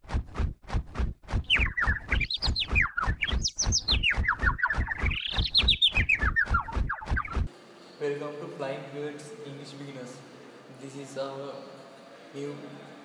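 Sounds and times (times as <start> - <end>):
bird chirping: 1.4 - 8.0.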